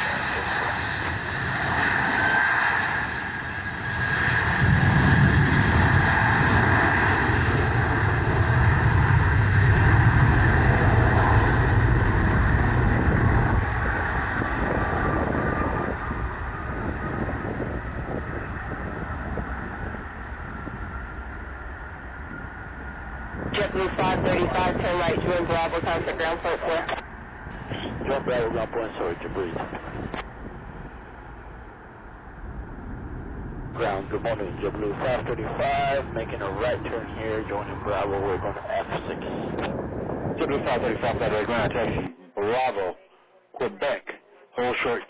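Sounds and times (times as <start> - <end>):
jet engine fan whine: 0.0 - 42.1
jet engine rumble: 0.0 - 42.1.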